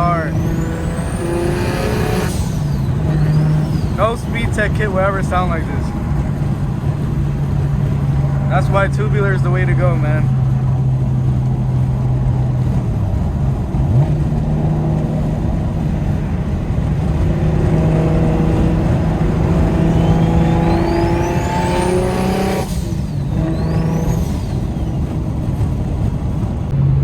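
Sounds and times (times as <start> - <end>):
turbo whistle: 0.0 - 4.2, 18.2 - 25.2
car engine pulling hard: 0.0 - 27.0.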